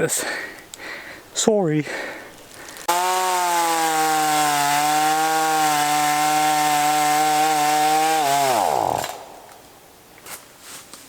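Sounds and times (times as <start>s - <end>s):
chainsaw cutting a tree: 2.7s - 9.5s.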